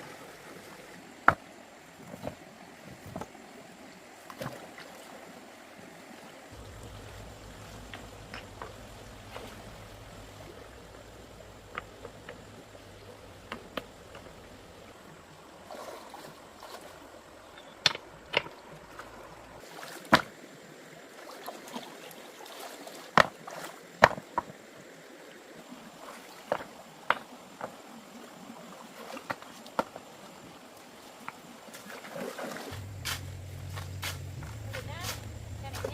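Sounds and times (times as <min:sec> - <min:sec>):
faint running water: 0:00.0 - 0:35.9
low hum: 0:06.6 - 0:15.0, 0:32.7 - 0:35.9.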